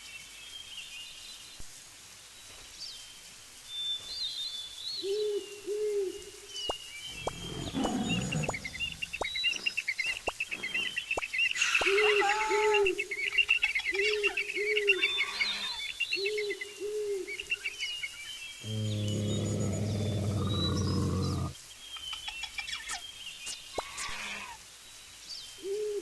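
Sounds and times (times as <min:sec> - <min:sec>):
birds twittering chorus: 0:06.5 - 0:25.6.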